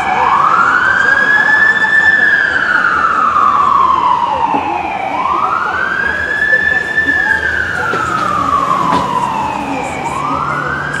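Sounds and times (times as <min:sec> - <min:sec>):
fire truck siren wailing: 0:00.0 - 0:11.0
truck engine hum: 0:03.0 - 0:11.0.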